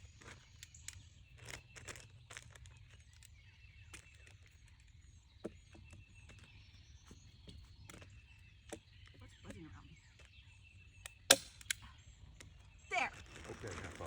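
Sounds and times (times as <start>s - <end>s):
plastic sheeting rustling: 12.9s - 14.0s.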